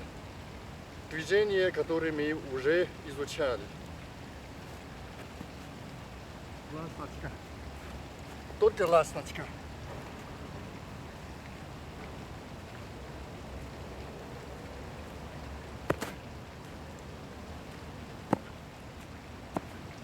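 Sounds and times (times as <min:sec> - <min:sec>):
steady background hiss: 0:00.0 - 0:20.0
sharp martial arts impacts: 0:15.9 - 0:16.2.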